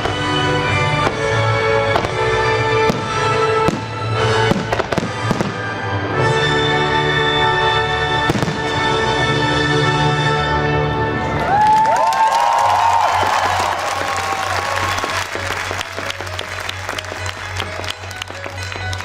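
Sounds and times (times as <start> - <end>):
loud music with sustained notes: 0.0 - 11.6
fireworks bangs: 1.9 - 5.8, 8.2 - 8.9, 13.7 - 19.0.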